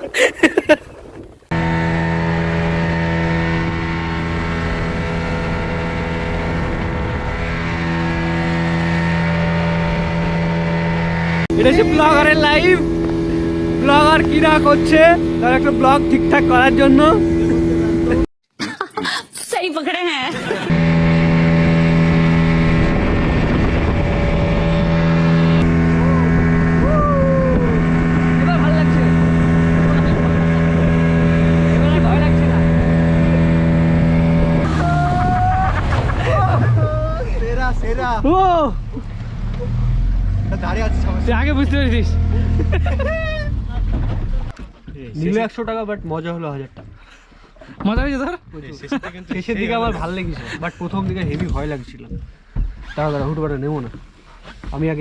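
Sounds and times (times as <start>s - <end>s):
motorboat engine running: 0.0s - 1.5s, 11.5s - 18.3s
motorboat engine drone: 0.0s - 10.8s, 11.5s - 18.3s, 20.8s - 34.6s.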